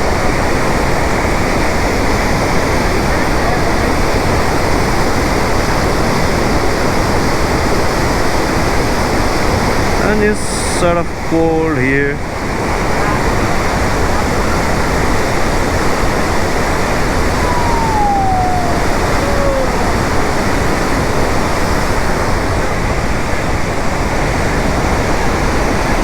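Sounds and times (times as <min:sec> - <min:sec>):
faint falling whistle-like tone: 0:17.2 - 0:20.8
waterfall rushing: 0:17.2 - 0:20.8.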